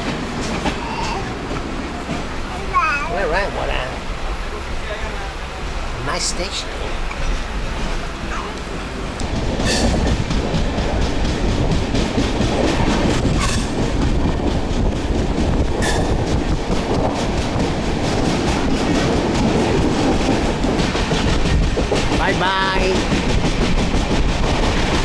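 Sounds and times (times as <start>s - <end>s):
wheels clacking over rail joints: 0.0s - 4.3s, 6.9s - 25.0s
train rumble: 0.0s - 25.0s.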